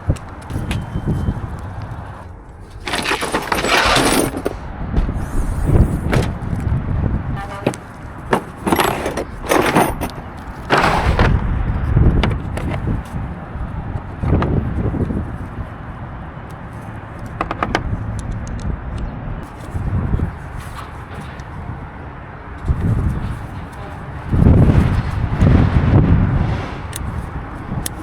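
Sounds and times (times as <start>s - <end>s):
rustling and scraping of wiring: 0.1s - 6.8s, 7.4s - 11.5s, 19.4s - 21.9s, 22.6s - 28.0s.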